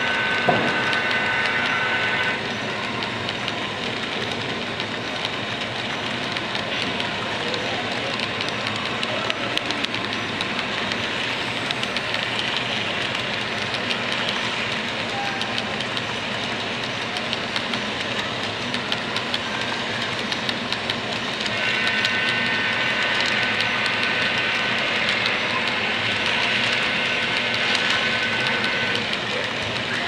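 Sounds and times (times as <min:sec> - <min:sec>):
model train rumbling: 0:00.0 - 0:30.0
wheels clicking on track: 0:00.0 - 0:30.0.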